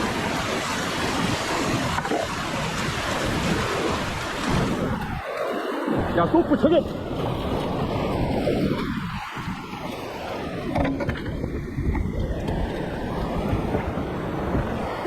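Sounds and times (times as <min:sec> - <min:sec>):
whitewater river rushing: 0:00.0 - 0:10.8.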